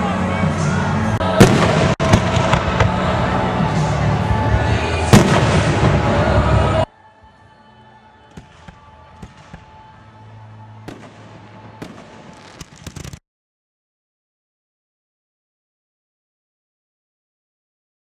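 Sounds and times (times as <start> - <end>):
fireworks bangs and crackle: 1.2 - 3.2, 5.1 - 6.6, 10.9 - 13.2.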